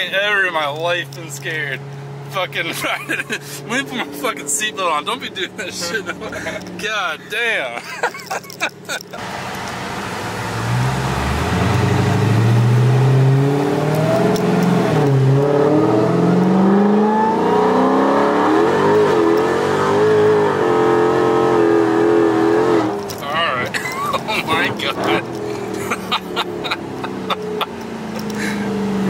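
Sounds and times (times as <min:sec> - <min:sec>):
car engine accelerating hard: 0:08.5 - 0:29.0.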